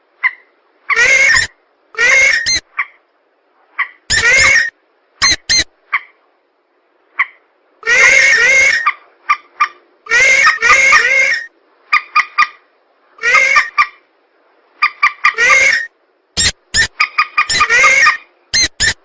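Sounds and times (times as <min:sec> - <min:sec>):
harsh wavering bird calls: 0:00.2 - 0:03.0, 0:03.8 - 0:06.2, 0:07.2 - 0:09.0, 0:10.1 - 0:12.6, 0:13.2 - 0:14.0, 0:14.8 - 0:19.0.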